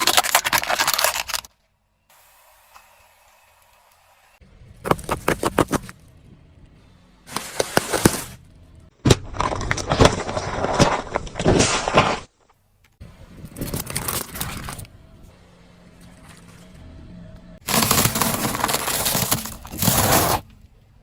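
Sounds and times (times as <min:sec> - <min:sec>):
objects crushed under car tyre: 0:08.9 - 0:12.4, 0:17.6 - 0:20.5.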